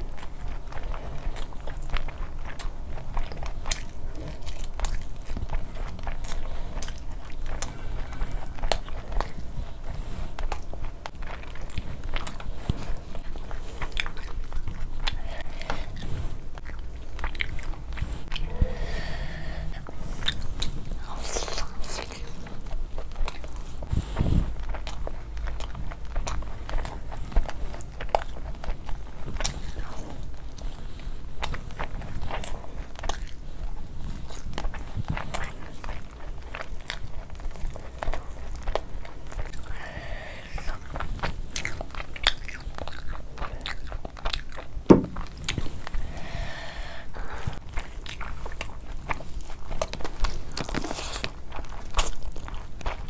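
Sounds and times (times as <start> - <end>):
chewing with wet clicks: 0.0 - 18.6, 19.3 - 46.5, 47.1 - 53.0
low thuds: 44.8 - 45.7
loud knock: 44.9 - 45.2.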